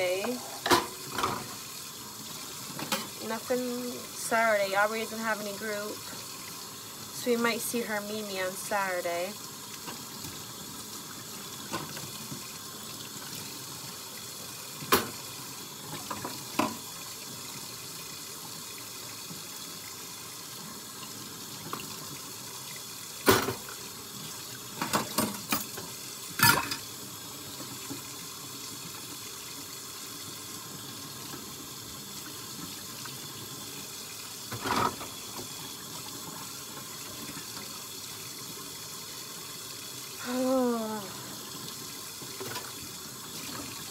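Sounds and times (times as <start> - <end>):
dishes clinking: 0.4 - 1.5, 26.4 - 26.9
tap running into sink: 14.8 - 17.0.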